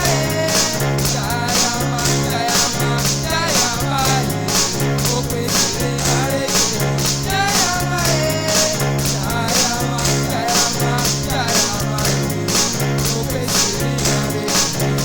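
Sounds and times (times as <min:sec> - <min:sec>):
band playing praise music: 0:00.0 - 0:15.0.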